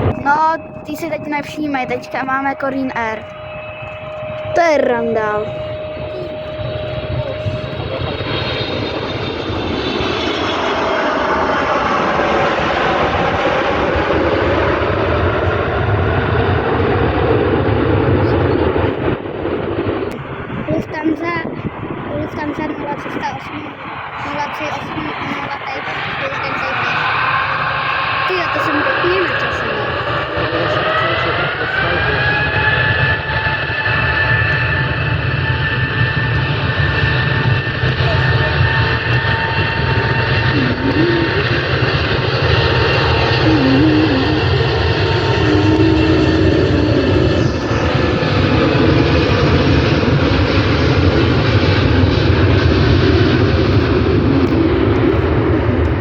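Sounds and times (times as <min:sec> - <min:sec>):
jet engines roaring and whining: 0:00.0 - 0:56.0.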